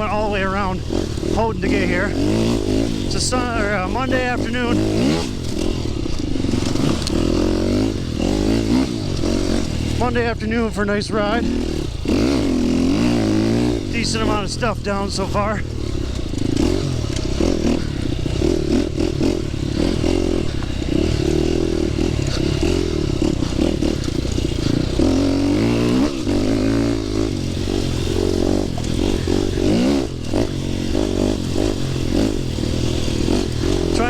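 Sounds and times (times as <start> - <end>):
dirt bike engine revving: 0.0 - 34.0
bike knocks and rattles: 15.7 - 34.0.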